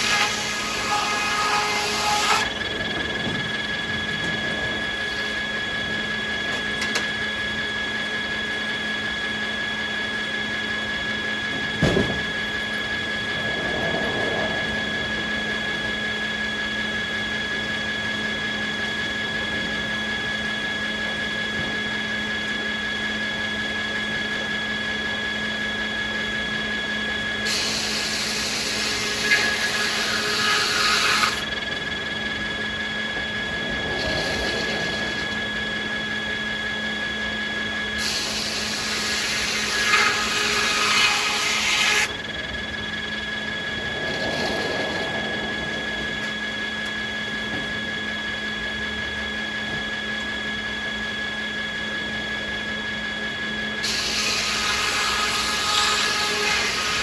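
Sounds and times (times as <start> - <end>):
sawmill machinery whining: 0.0 - 57.0
loud rushing noise: 43.2 - 47.5.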